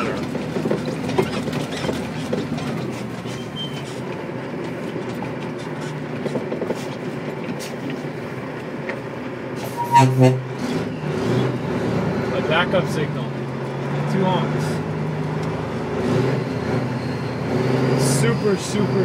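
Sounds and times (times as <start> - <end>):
cab rattling and clicking: 0.0 - 9.1
truck engine running: 0.0 - 19.0
high squeak: 3.2 - 4.0, 9.6 - 11.0.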